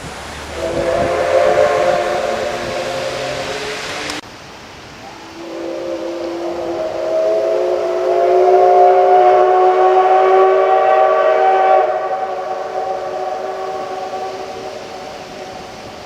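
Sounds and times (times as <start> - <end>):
steam locomotive whistle blast: 0.5 - 4.2, 5.0 - 16.0.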